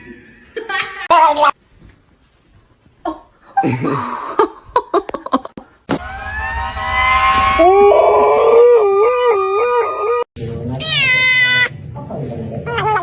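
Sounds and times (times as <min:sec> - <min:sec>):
cat yowling: 0:10.8 - 0:11.7.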